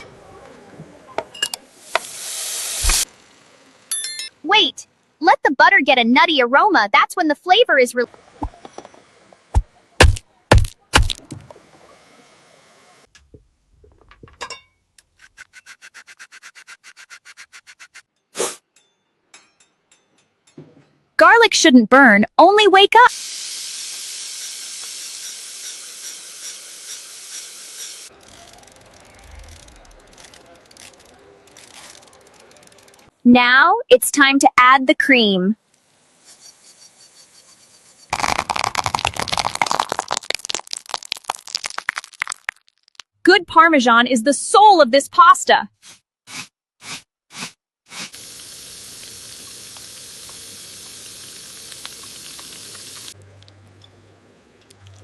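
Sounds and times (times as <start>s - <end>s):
garlic sizzling in a frying pan: 23.1s - 28.1s, 48.2s - 53.2s.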